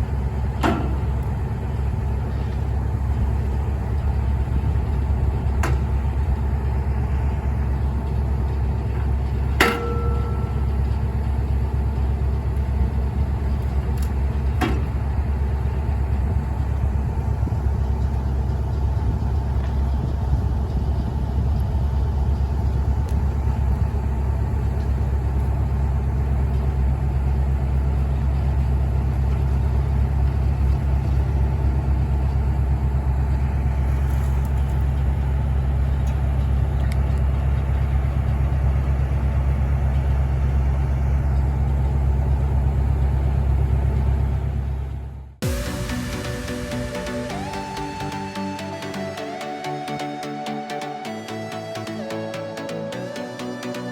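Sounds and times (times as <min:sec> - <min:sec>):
large engine idling: 0:00.0 - 0:53.9.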